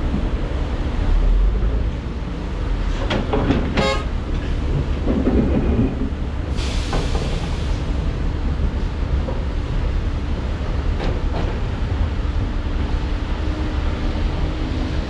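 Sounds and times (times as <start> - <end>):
diesel machinery low rumble: 0.0 - 15.0
burst of hiss: 6.5 - 7.9.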